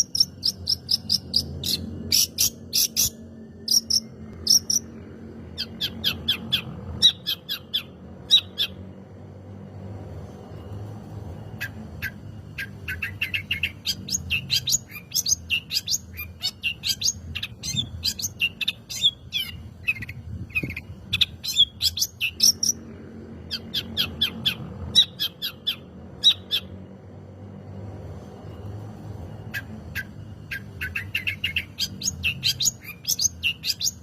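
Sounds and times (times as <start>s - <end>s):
shrike singing: 0.0s - 8.9s.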